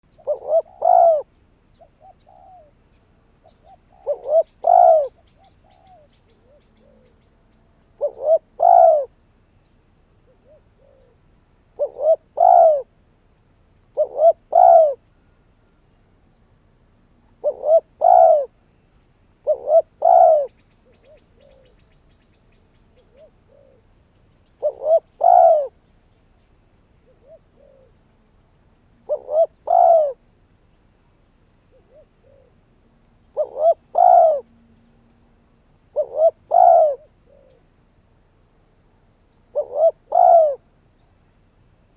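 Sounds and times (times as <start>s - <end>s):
dove cooing: 0.0s - 2.8s, 3.4s - 7.3s, 7.9s - 9.2s, 10.2s - 12.9s, 13.9s - 15.0s, 17.4s - 18.6s, 19.4s - 21.9s, 22.9s - 25.8s, 27.0s - 28.0s, 29.0s - 30.2s, 31.7s - 34.6s, 35.9s - 37.6s, 39.5s - 40.7s.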